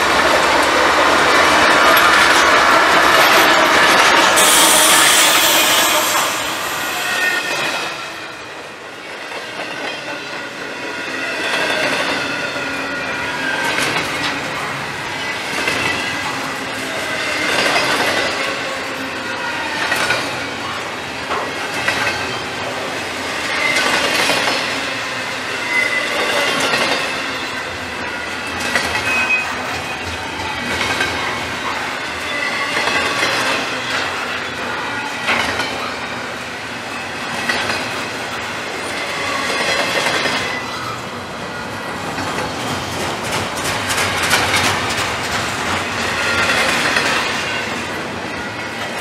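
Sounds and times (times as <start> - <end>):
steel wheels clacking on rails: 0.0 - 49.0
high wheel squeal: 3.9 - 8.8, 25.6 - 30.4.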